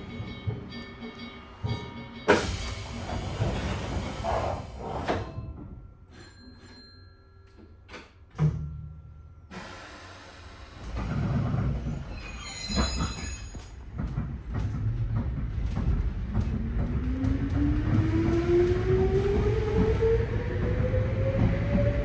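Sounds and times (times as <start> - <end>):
train running noise: 0.0 - 6.8, 9.5 - 22.0
loud air hiss: 2.3 - 5.0.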